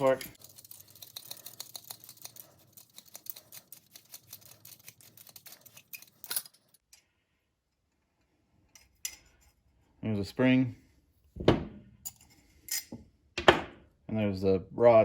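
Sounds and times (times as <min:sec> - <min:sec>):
metal parts clicking and rattling: 0:00.0 - 0:06.8.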